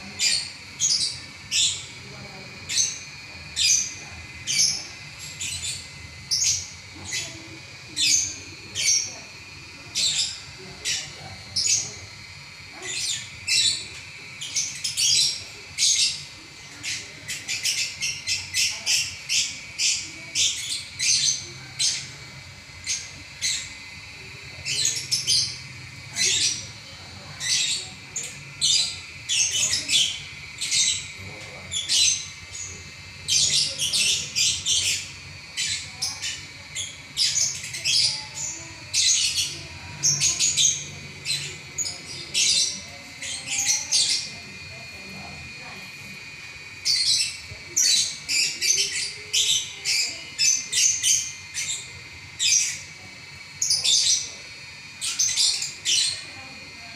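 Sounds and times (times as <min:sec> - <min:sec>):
lovebird chirping and squawking: 0:00.0 - 0:45.8, 0:46.8 - 0:53.0.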